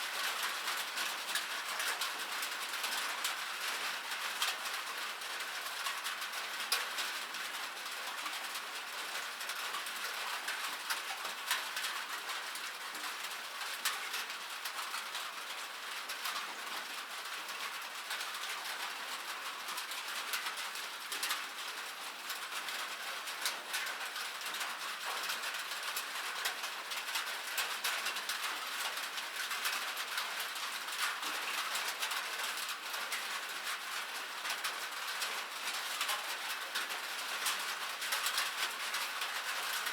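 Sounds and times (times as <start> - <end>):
rain on a metal surface: 0.0 - 39.9.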